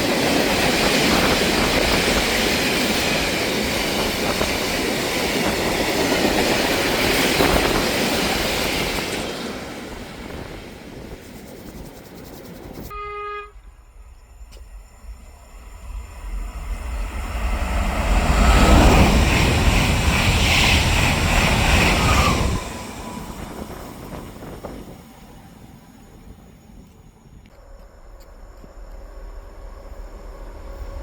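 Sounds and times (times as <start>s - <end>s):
train passing rumble: 0.0s - 31.0s
train horn blast: 12.9s - 13.8s.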